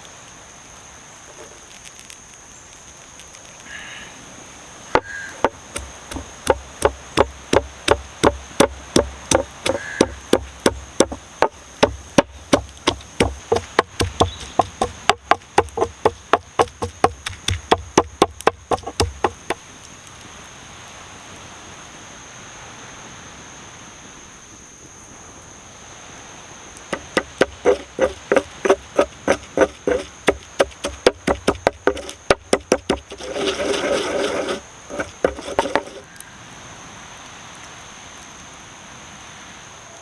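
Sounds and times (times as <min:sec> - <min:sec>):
high insect drone: 0:00.0 - 0:38.7
knife chopping on wooden board: 0:05.0 - 0:19.6, 0:27.0 - 0:36.0.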